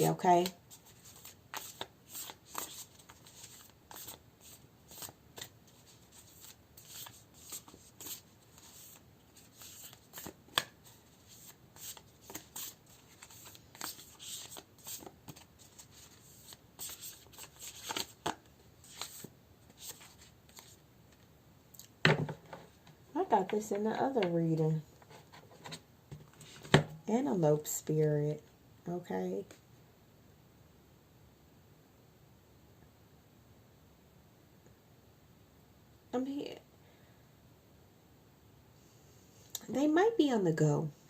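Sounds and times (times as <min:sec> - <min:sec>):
cards being shuffled: 0:00.3 - 0:20.8.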